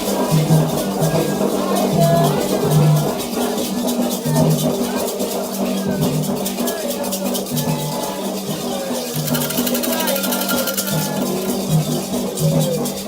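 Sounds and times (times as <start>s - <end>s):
rattle shaken: 0.0s - 13.0s
voices singing: 0.0s - 13.0s.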